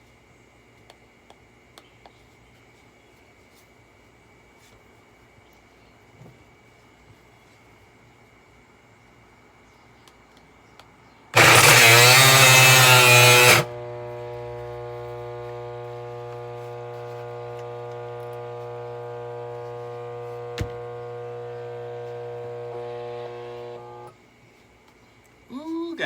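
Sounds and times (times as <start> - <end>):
vacuum cleaner running: 11.4 - 24.1.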